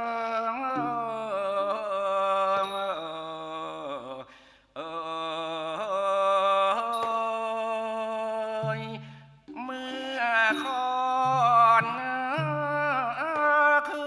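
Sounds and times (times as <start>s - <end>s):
person singing melismatic line: 0.7s - 4.2s, 6.7s - 14.0s.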